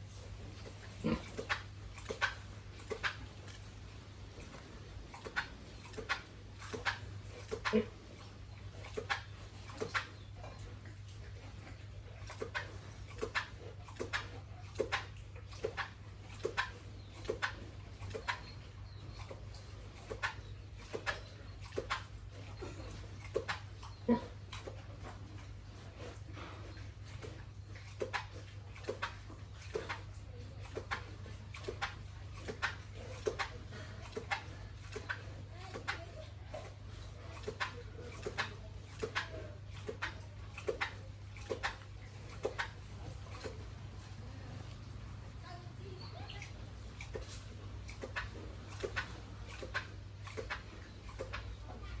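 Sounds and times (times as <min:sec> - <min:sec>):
pig grunting: 0:00.0 - 0:45.4.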